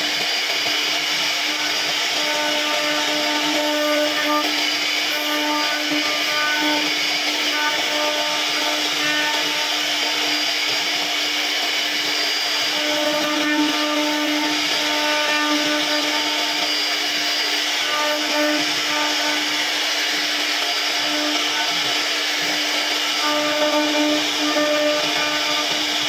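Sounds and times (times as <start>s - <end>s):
cnc router spindle cutting wood: 0.0s - 26.0s.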